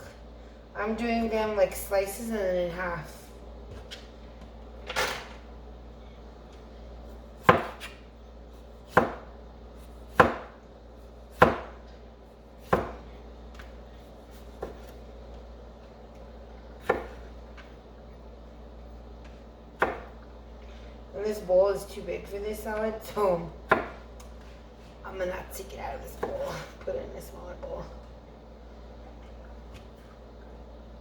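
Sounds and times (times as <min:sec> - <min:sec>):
knife slicing tomatoes: 0:07.1 - 0:08.0, 0:12.6 - 0:15.0.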